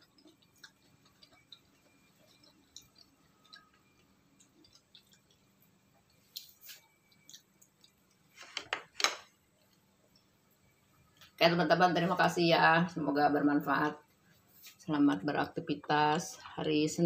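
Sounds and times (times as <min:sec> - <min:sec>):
faint chewing: 0:00.0 - 0:08.6.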